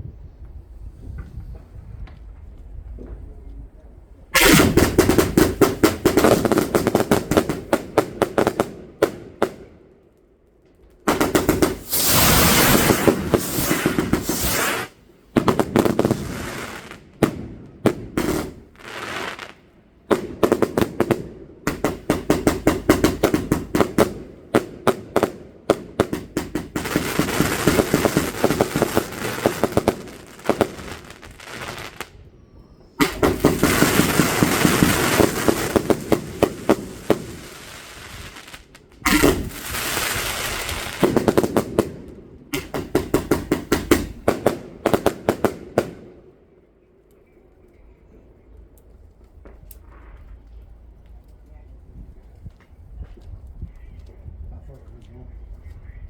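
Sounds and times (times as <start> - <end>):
fireworks crackling bangs: 4.4 - 9.6, 11.0 - 32.2, 33.0 - 46.1.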